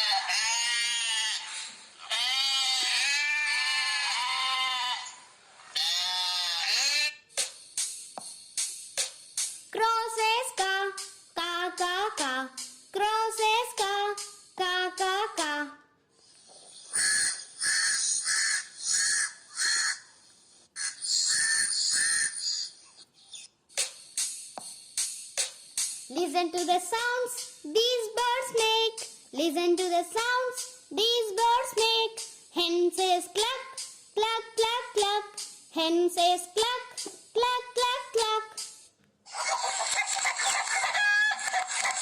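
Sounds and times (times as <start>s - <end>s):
sheep bleating: 0.0s - 5.2s, 5.8s - 7.2s
crow cawing: 16.9s - 20.1s, 20.8s - 22.6s.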